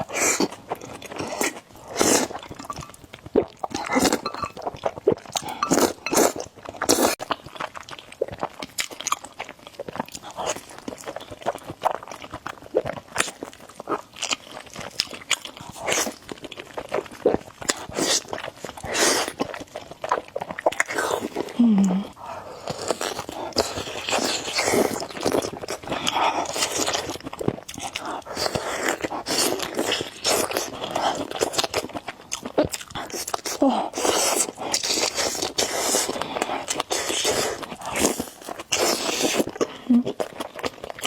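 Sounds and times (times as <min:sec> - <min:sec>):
person chewing and slurping noodles: 0:00.0 - 0:41.0.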